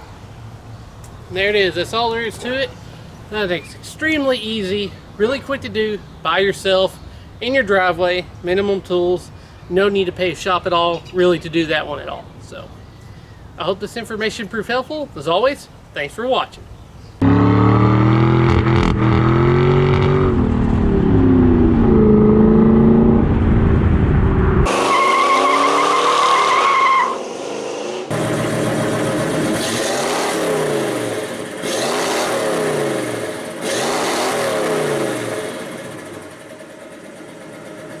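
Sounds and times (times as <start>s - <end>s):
car engines revving: 17.2s - 26.6s, 27.2s - 36.4s.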